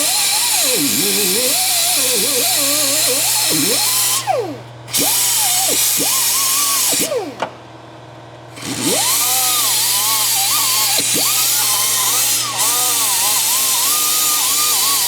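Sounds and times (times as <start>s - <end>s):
power tool motor winding: 0.0s - 7.4s, 8.6s - 15.0s.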